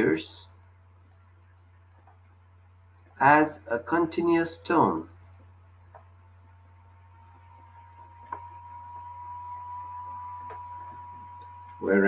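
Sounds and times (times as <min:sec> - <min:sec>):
low electrical hum: 0:00.0 - 0:12.0
faint clicks: 0:00.4 - 0:04.0, 0:04.9 - 0:06.2, 0:08.1 - 0:11.8.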